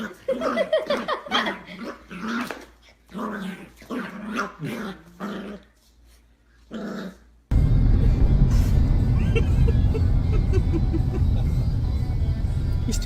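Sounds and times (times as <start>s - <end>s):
dog growling: 1.3s - 5.7s, 6.7s - 7.3s.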